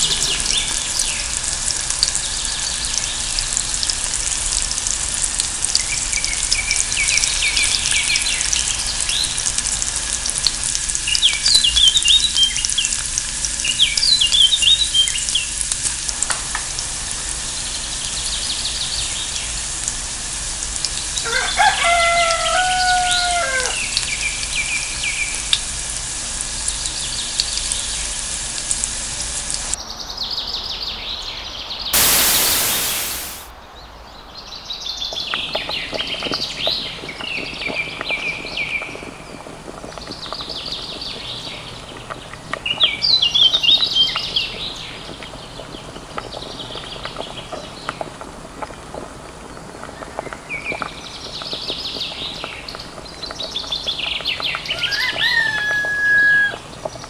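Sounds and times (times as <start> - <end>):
birds chirping: 0.0 - 1.3, 30.9 - 33.5
loud rush of hissing noise: 0.0 - 6.1, 32.0 - 33.7.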